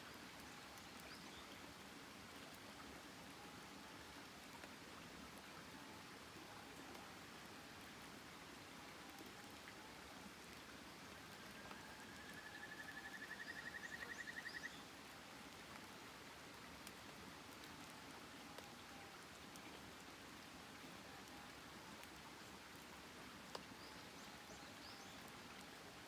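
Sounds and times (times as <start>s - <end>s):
faint steady hiss: 0.0s - 26.0s
faint clicks: 23.5s - 23.7s.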